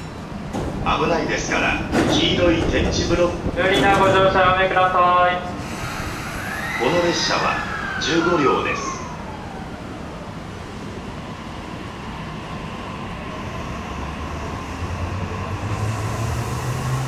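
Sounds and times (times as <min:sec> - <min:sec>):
electric train pulling in: 0:04.2 - 0:17.0
falling whine: 0:05.6 - 0:17.0.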